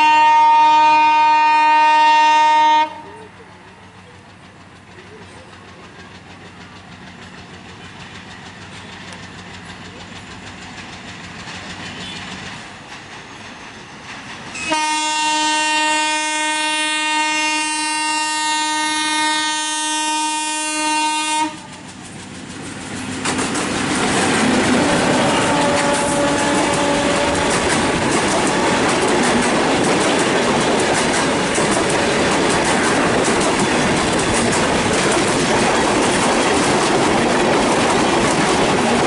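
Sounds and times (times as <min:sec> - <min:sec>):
train horn blast: 0:00.0 - 0:03.2, 0:14.6 - 0:21.8, 0:24.4 - 0:27.8, 0:28.4 - 0:29.1
diesel locomotive rumbling: 0:00.0 - 0:39.0
wheels clattering over rail joints: 0:21.6 - 0:39.0.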